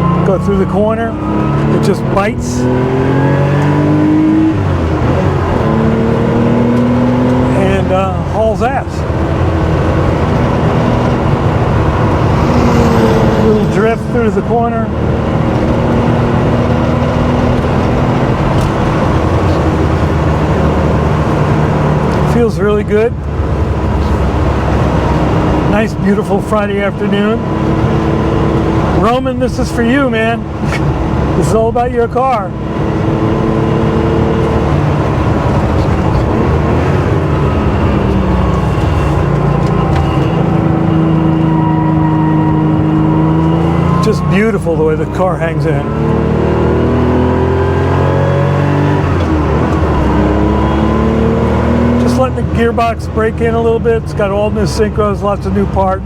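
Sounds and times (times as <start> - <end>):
car engine running under load: 0.0 - 56.0.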